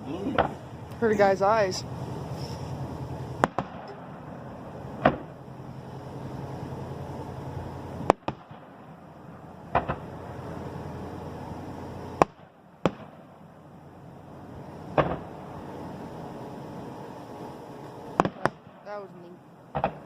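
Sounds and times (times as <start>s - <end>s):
fireworks bangs: 3.3s - 5.5s, 8.0s - 9.0s, 9.7s - 10.2s, 12.2s - 13.3s, 14.9s - 15.4s, 18.1s - 18.8s, 19.7s - 20.0s.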